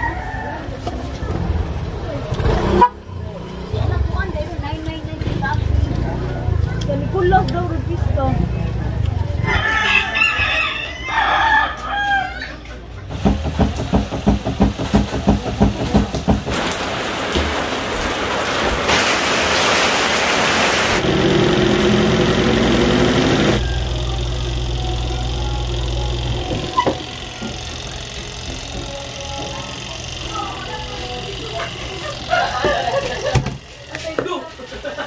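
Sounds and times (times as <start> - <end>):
rooster crowing: 0.0 - 0.9, 9.4 - 12.7, 23.6 - 25.6
low hum: 21.0 - 33.3.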